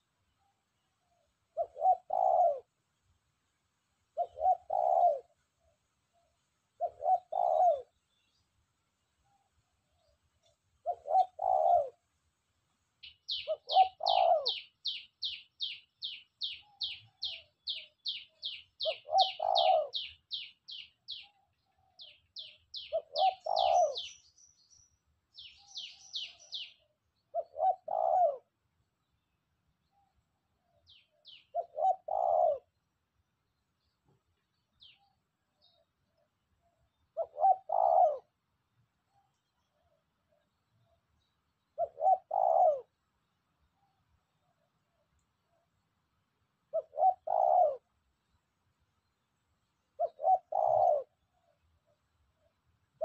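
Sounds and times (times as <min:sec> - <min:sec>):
dove cooing: 0:01.5 - 0:02.7, 0:04.2 - 0:05.4, 0:06.8 - 0:08.0, 0:10.8 - 0:12.0, 0:13.3 - 0:15.8, 0:16.4 - 0:21.3, 0:21.9 - 0:24.2, 0:25.4 - 0:28.6, 0:30.8 - 0:32.8, 0:37.1 - 0:38.4, 0:41.8 - 0:43.0, 0:46.7 - 0:47.9, 0:50.0 - 0:51.5
small bird chirping rapidly: 0:13.0 - 0:21.4, 0:22.0 - 0:26.9.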